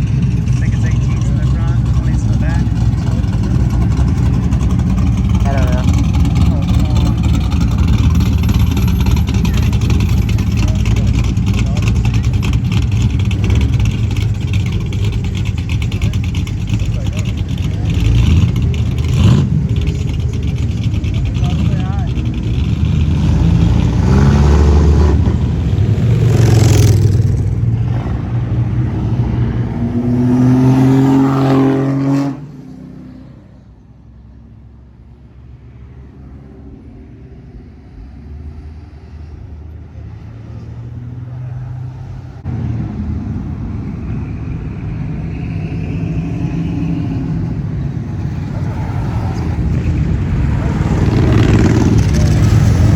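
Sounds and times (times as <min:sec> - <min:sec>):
car engines revving: 0:00.0 - 0:52.9.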